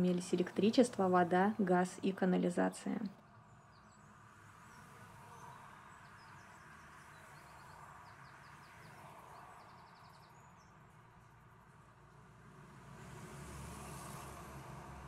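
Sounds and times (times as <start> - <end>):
songbirds chirping: 0.0 - 11.4
faint street ambience: 0.0 - 15.0.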